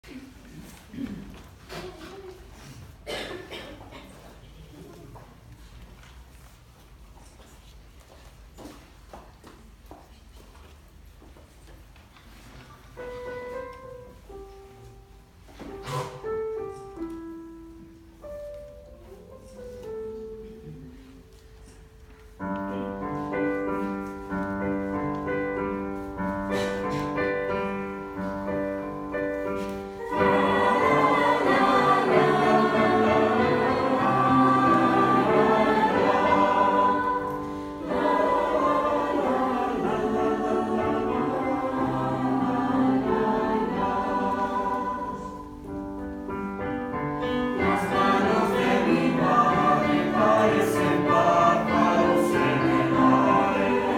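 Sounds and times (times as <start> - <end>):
piano playing: 22.4 - 53.9
youth choir singing: 27.3 - 45.8, 47.2 - 53.9.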